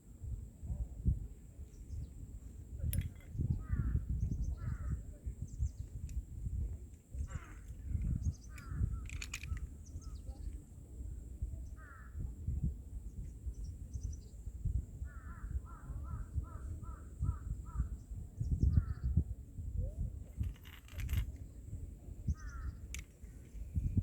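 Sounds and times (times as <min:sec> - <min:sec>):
faint clicks: 0:06.9 - 0:09.7, 0:22.4 - 0:23.7
crow cawing: 0:11.8 - 0:12.1, 0:15.1 - 0:17.9.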